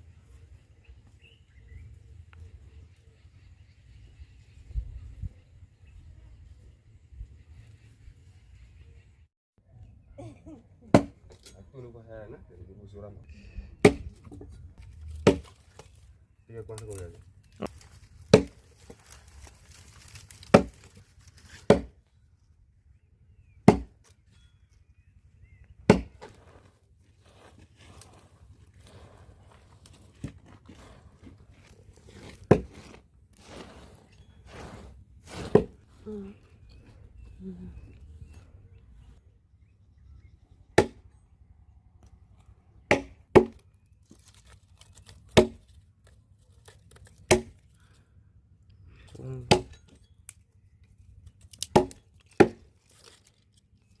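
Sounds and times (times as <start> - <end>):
heavy blade chopping strikes: 15.2 - 15.6, 18.3 - 18.6, 21.5 - 21.9, 23.7 - 23.9, 25.9 - 26.3, 35.4 - 35.8, 40.8 - 41.0, 49.5 - 49.8.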